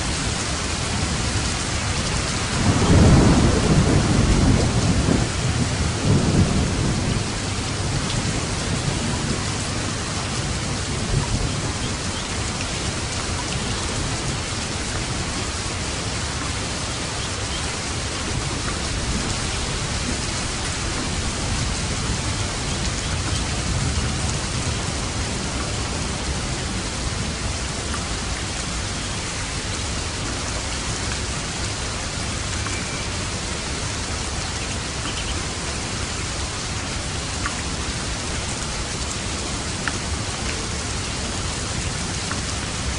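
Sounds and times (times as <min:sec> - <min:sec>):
rain on a roof: 0:00.0 - 0:42.9
low thunder rumble: 0:02.2 - 0:14.4.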